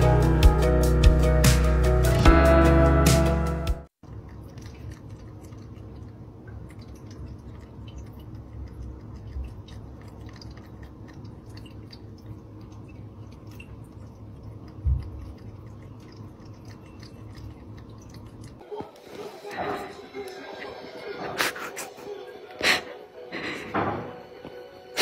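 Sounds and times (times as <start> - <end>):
cat chewing its paw: 4.0 - 19.1.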